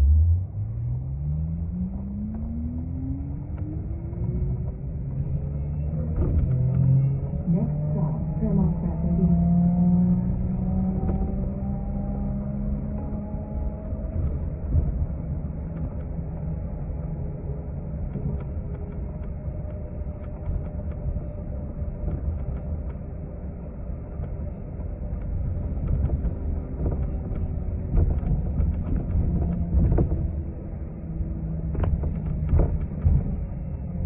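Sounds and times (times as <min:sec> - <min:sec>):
bus drivetrain rumble: 0:00.0 - 0:34.0
faint whining tones: 0:00.4 - 0:34.0.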